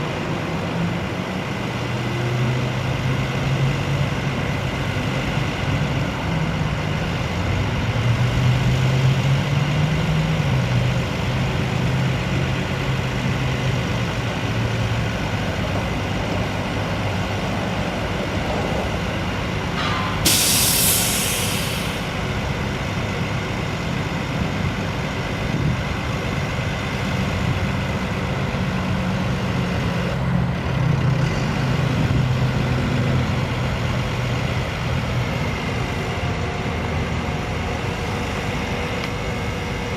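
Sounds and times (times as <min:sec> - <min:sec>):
diesel truck engine running: 0:00.0 - 0:39.9
air brake hiss: 0:19.8 - 0:22.2.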